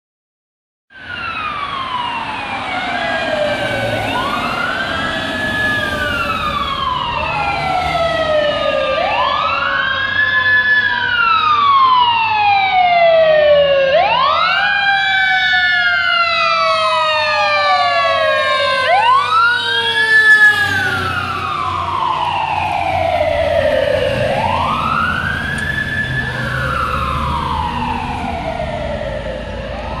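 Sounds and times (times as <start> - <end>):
fire engine sirens wailing: 0.9 - 30.0
truck engine rumble: 18.8 - 30.0.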